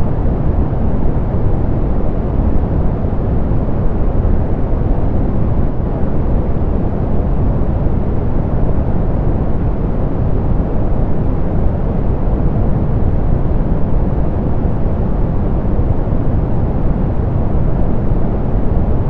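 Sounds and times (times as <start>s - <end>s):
soft pink noise: 0.0s - 19.0s.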